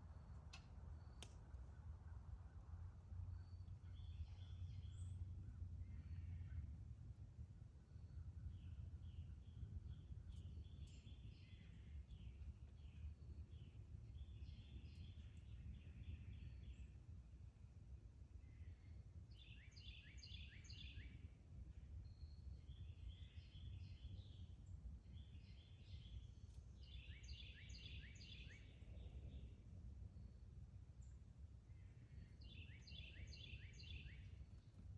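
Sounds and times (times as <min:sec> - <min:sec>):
low background rumble: 0:00.0 - 0:19.5, 0:21.2 - 0:34.9
faint songbird singing: 0:00.9 - 0:34.9.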